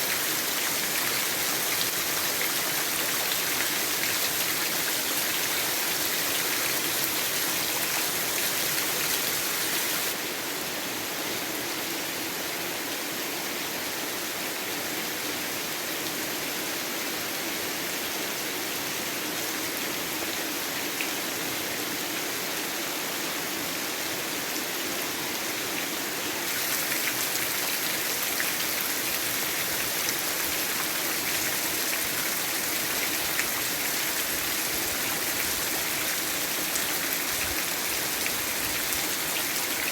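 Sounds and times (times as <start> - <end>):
heavy rain falling: 0.0 - 10.2, 26.5 - 39.9.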